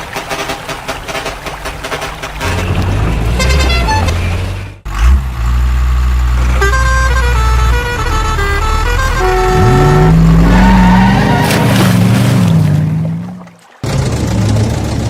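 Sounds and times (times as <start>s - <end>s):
low engine hum: 0.0s - 15.0s
horn playing held notes: 3.3s - 4.3s, 6.4s - 10.9s.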